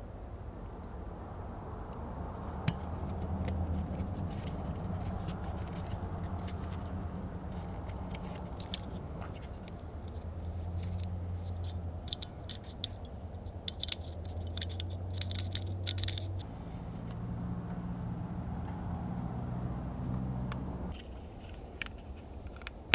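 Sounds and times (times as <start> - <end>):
low mechanical hum: 0.0 - 22.7
metallic clicks and jingles: 3.8 - 16.5.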